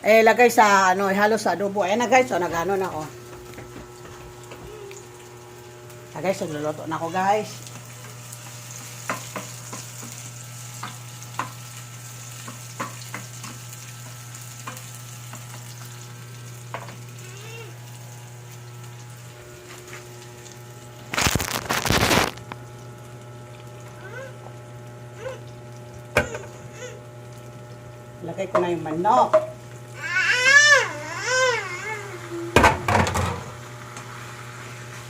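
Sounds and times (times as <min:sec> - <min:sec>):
potatoes sizzling in oil: 0:00.1 - 0:32.6, 0:33.2 - 0:35.0
oil popping and crackling: 0:07.5 - 0:28.2.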